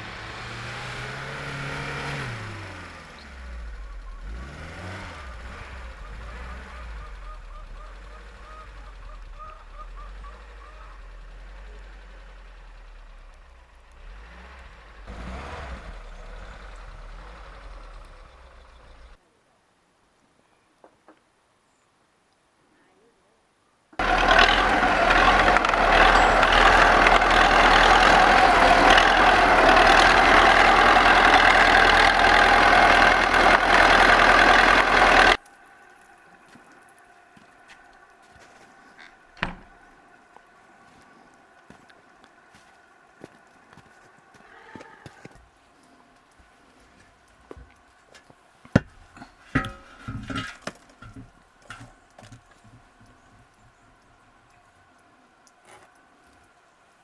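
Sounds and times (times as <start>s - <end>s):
engine humming: 0.0s - 19.2s, 24.0s - 44.5s, 45.2s - 55.5s
knocks of objects handled: 48.6s - 53.0s
clattering with slight ring: 49.2s - 52.0s.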